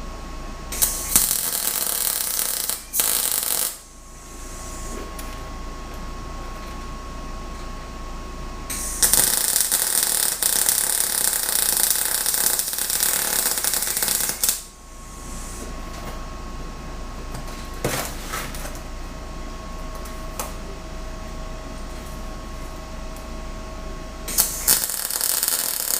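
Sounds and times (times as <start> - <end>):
welder crackling hiss: 0.7 - 4.9, 8.7 - 15.6, 24.3 - 25.9.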